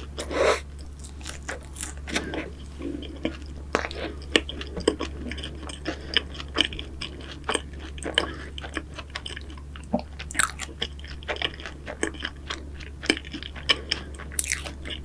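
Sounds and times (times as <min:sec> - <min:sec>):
light crunching of pastry: 0:00.7 - 0:15.0.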